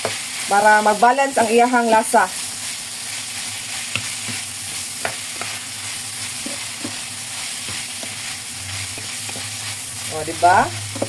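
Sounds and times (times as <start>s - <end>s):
meat sizzling in a frying pan: 0.0s - 11.0s
spatula scraping against pan: 3.3s - 11.0s.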